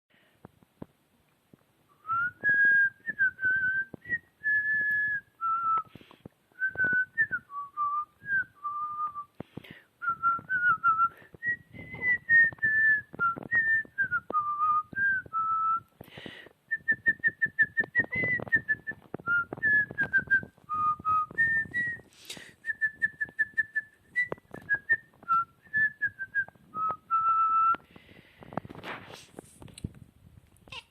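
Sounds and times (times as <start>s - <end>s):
person whistling a tune: 2.0s - 6.0s, 6.6s - 9.4s, 10.0s - 15.9s, 16.7s - 27.8s.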